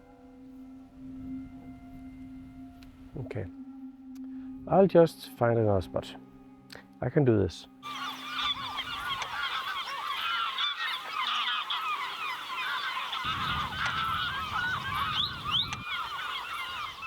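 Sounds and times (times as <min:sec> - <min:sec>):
flock of birds calling: 0:07.8 - 0:17.0.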